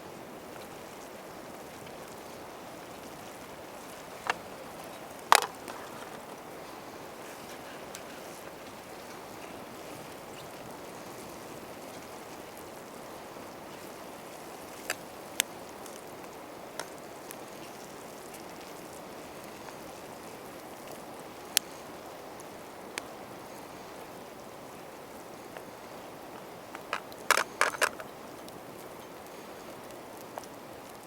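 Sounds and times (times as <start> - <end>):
campfire hissing: 0.0 - 31.0
fire popping: 1.8 - 19.8, 25.5 - 31.0.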